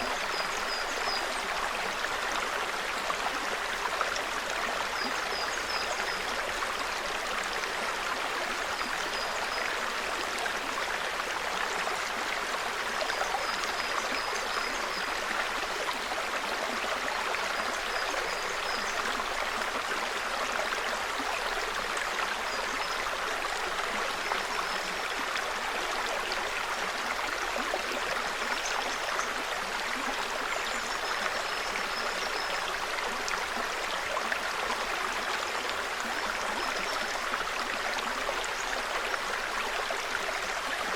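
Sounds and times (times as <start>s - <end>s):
brook babbling over stones: 0.0s - 40.9s.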